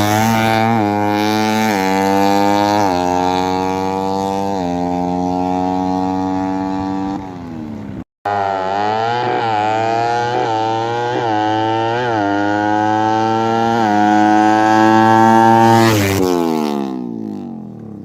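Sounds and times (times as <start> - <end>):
motorcycle engine revving high: 0.0 - 18.0.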